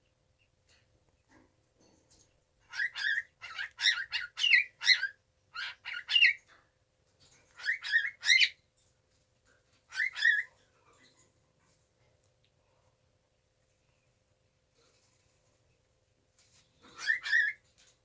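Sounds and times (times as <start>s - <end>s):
cockatiel chirping: 2.7s - 6.4s, 7.6s - 8.6s, 9.9s - 10.5s, 16.9s - 17.7s.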